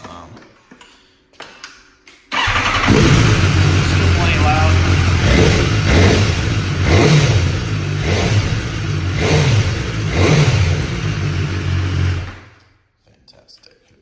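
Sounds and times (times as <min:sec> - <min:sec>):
motorcycle engine revving: 0:02.4 - 0:12.6.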